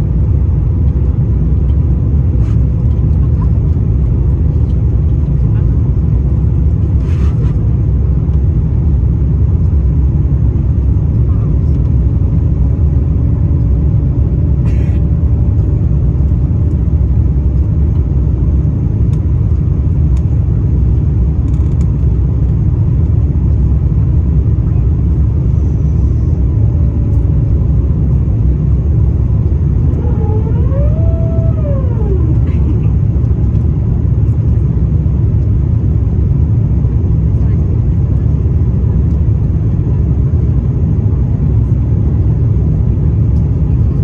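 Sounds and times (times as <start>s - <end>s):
jet engine cabin rumble: 0.0s - 44.0s
faint steady hum: 24.7s - 34.7s.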